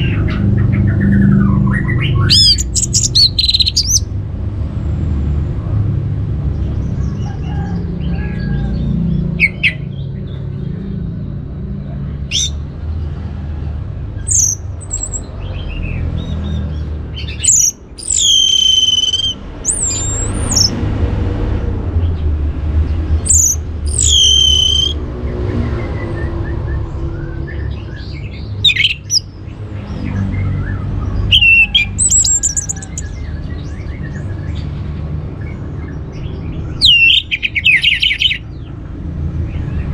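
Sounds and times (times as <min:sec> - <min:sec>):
bird singing whistled phrases: 0:01.8 - 0:04.0, 0:12.3 - 0:12.5, 0:17.3 - 0:20.7, 0:23.3 - 0:25.0, 0:28.7 - 0:29.2, 0:31.3 - 0:33.1, 0:36.8 - 0:38.4.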